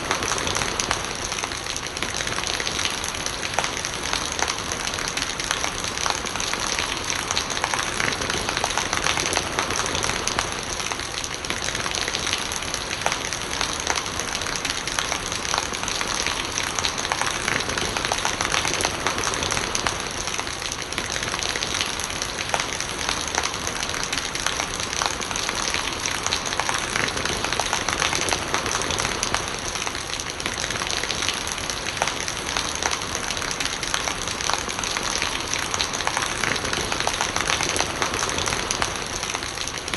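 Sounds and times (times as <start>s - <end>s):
gurgling rainwater: 0.0s - 39.9s
steady rain: 0.0s - 39.9s.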